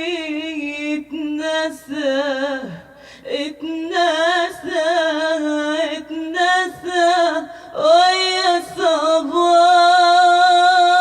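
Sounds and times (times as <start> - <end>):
woman singing with vibrato: 0.0 - 11.0.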